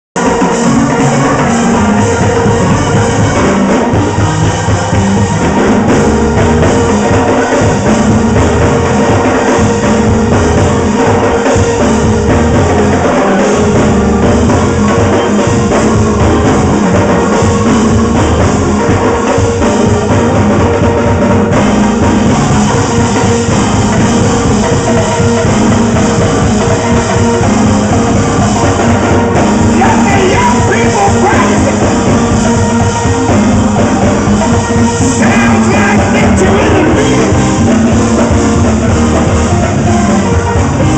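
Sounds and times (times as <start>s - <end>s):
gospel band playing: 0.0s - 40.9s
drums: 0.2s - 40.9s
singing: 29.5s - 32.1s, 35.1s - 37.6s.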